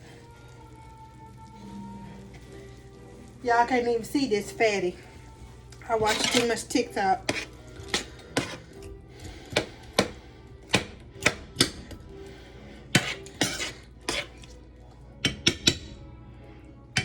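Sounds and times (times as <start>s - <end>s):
utensil scraping: 5.8s - 10.2s, 12.9s - 14.6s
utensils clinking against cookware: 5.8s - 12.0s, 12.9s - 14.6s.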